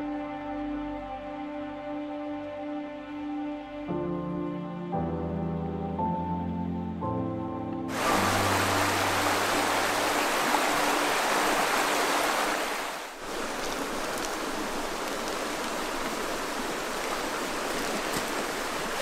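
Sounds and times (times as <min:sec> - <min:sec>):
river water rushing: 0:07.9 - 0:19.0.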